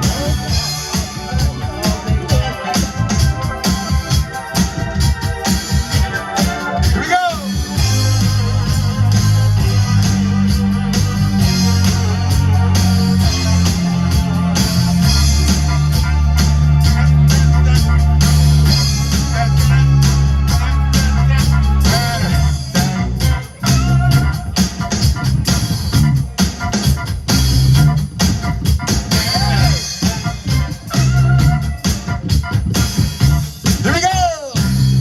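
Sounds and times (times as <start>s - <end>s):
live funk band playing: 0.0s - 35.0s.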